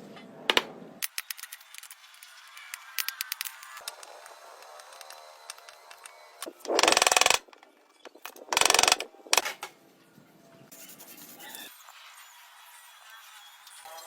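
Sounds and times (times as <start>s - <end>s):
rapid mechanical clicking: 6.4s - 7.5s, 8.2s - 9.1s.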